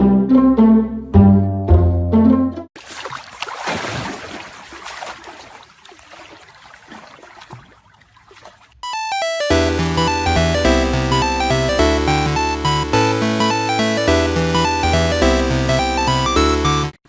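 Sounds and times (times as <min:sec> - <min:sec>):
background music: 0:00.0 - 0:02.7, 0:08.8 - 0:17.0
water sloshing and splashing: 0:02.8 - 0:08.9.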